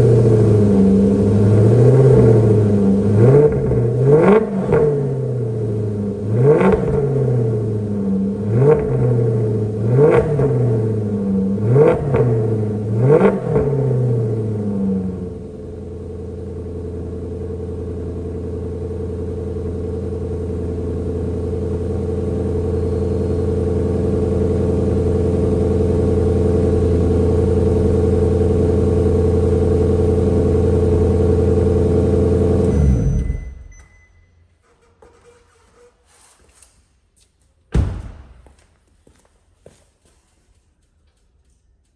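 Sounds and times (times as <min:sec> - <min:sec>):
car engine idling: 0:00.0 - 0:13.0, 0:13.6 - 0:33.8
heavy thump: 0:37.7 - 0:38.7.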